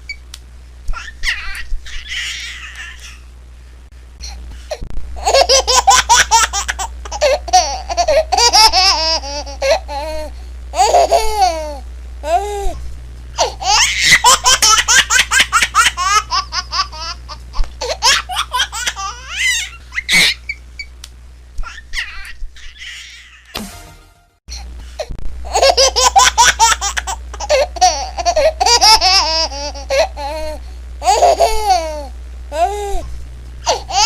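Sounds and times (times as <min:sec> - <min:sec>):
baby laughing: 0:00.9 - 0:03.2, 0:05.2 - 0:12.4, 0:13.4 - 0:20.6, 0:21.6 - 0:23.6, 0:25.5 - 0:32.8, 0:33.7 - 0:34.0.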